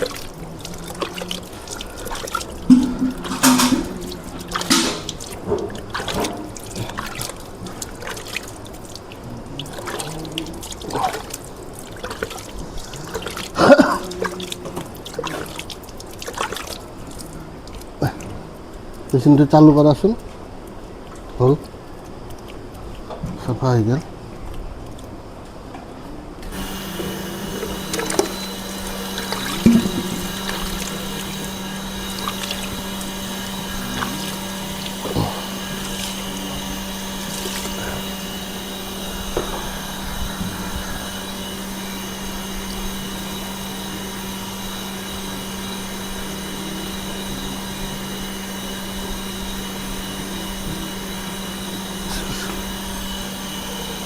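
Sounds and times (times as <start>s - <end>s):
electric pump humming: 0.0s - 20.7s, 26.4s - 54.0s
clicks and knocks: 2.7s - 6.4s.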